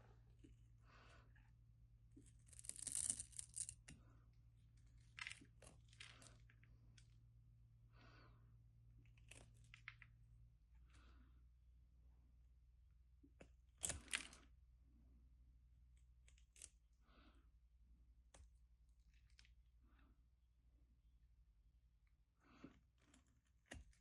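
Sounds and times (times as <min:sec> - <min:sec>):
knife scraping soap: 0:00.0 - 0:07.2, 0:22.5 - 0:24.0.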